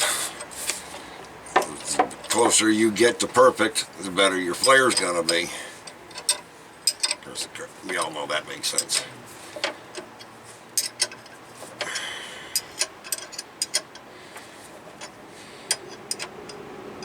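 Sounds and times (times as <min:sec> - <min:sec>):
scraping rustle: 0:00.0 - 0:12.0
small metal clicks and taps: 0:04.6 - 0:07.3, 0:08.7 - 0:14.1, 0:15.0 - 0:16.6.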